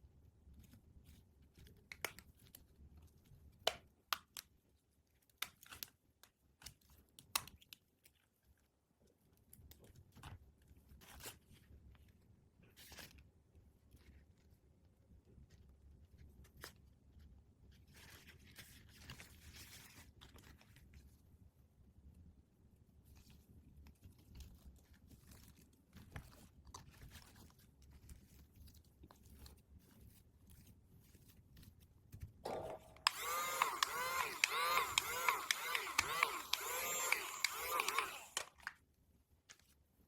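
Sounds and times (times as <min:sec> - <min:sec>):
plastic clicks and taps: 0:32.5 - 0:38.7.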